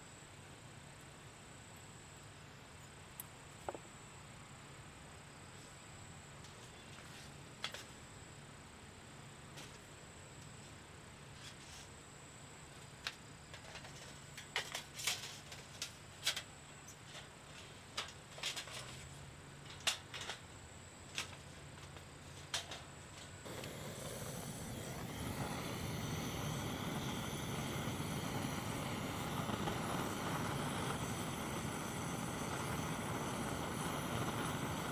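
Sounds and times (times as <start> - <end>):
wood fire crackling: 21.1 - 34.9
sharp fire pops: 23.4 - 34.9.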